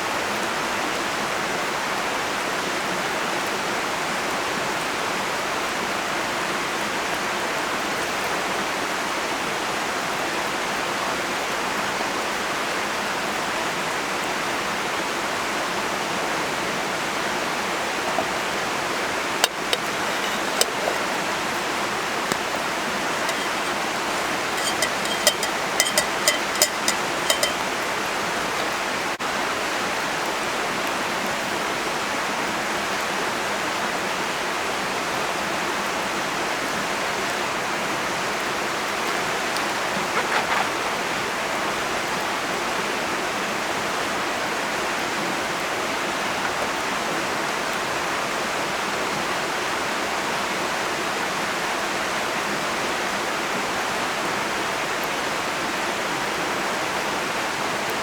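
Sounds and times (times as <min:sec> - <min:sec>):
running water rushing: 0:15.8 - 0:31.2, 0:36.8 - 0:42.0.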